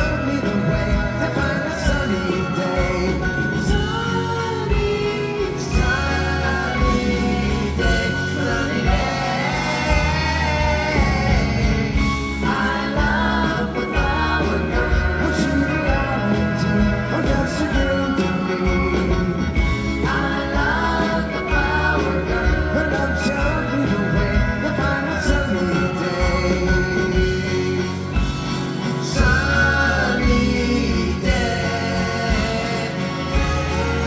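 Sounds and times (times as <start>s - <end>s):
bass line: 0.0s - 34.0s
singing with harmonies: 0.0s - 34.0s.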